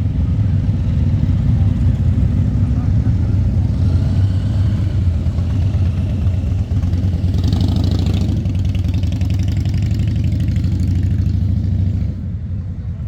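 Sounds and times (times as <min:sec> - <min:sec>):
motorcycle engines rumbling: 0:00.0 - 0:13.0.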